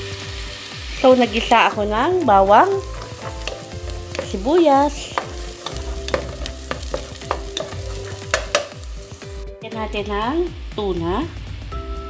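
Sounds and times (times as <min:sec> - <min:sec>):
garlic and onion sizzling in oil: 0:00.0 - 0:12.0
wooden spoon knocking on pot: 0:02.6 - 0:08.9.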